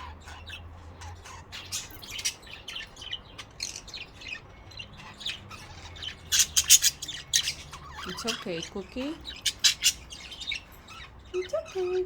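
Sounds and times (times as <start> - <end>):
budgerigars chirping: 0.0 - 12.0.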